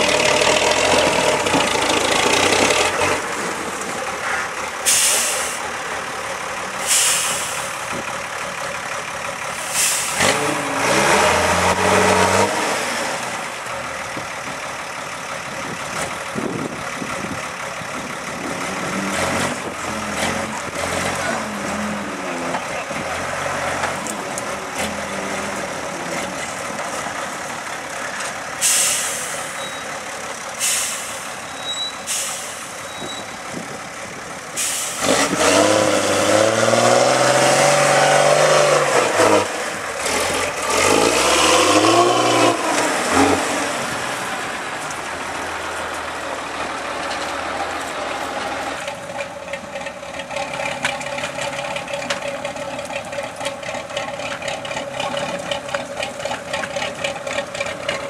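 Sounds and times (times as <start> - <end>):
truck engine revving: 0.0 - 58.0
air hisses: 4.8 - 5.7, 6.8 - 7.8, 9.6 - 10.2, 28.6 - 29.6.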